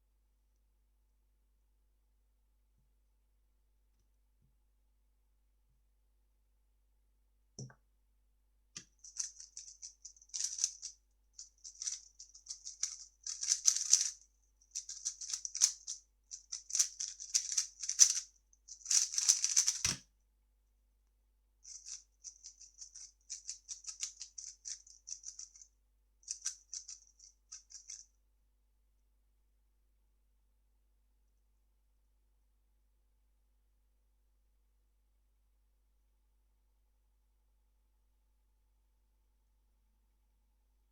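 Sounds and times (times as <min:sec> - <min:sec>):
plastic puzzle cube clicking: 0:12.6 - 0:14.1.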